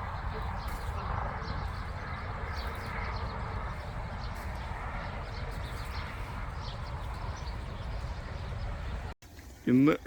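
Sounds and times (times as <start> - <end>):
wind rumbling on microphone: 0.0 - 9.2.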